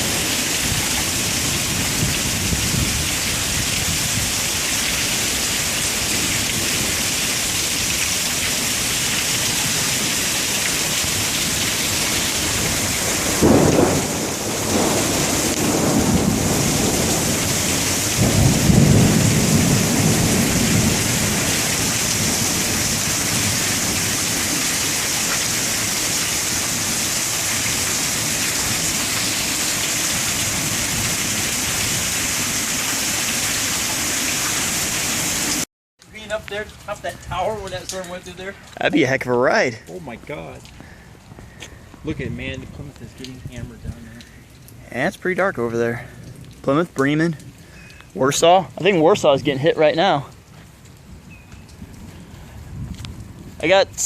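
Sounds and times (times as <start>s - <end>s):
thunder rumble: 0.0s - 7.1s, 10.9s - 24.9s
heavy rain pouring: 0.0s - 54.0s
thunder clap: 11.1s - 24.6s.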